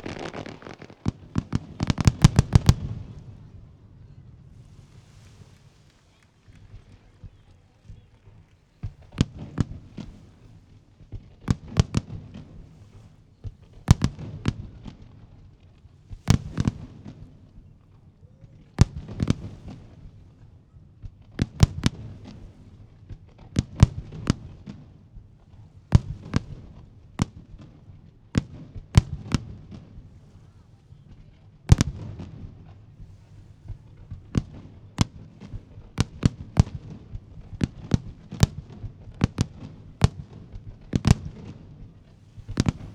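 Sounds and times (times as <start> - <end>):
firework shells bursting: 0.0 - 3.0, 33.0 - 42.9.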